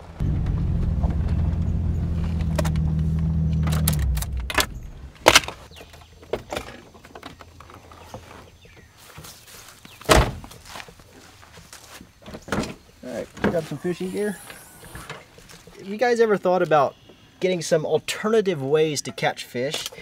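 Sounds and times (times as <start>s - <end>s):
vehicle engine running: 0.0s - 5.4s
sharp clicks and knocks: 2.4s - 5.6s.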